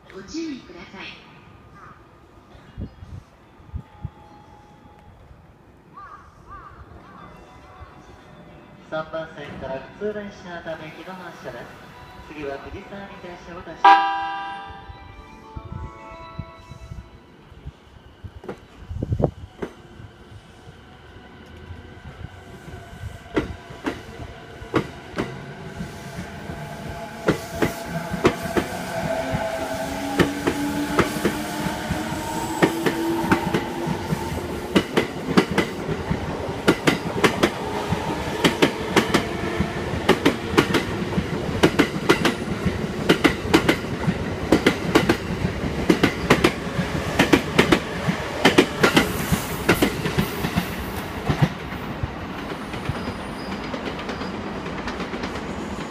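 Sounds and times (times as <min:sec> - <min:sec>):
train wheels clicking over rail joints: 0:30.2 - 0:55.9.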